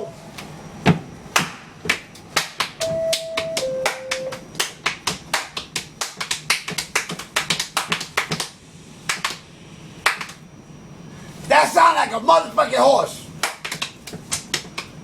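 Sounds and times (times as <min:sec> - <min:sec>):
two-note descending tone: 0:02.8 - 0:04.4.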